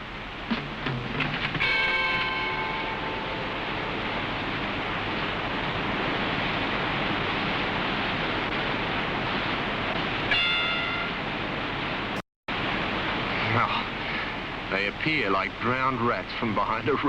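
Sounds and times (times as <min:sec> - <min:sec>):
white water rushing: 0:00.0 - 0:17.0
brief high-pitched tone: 0:10.3 - 0:11.2.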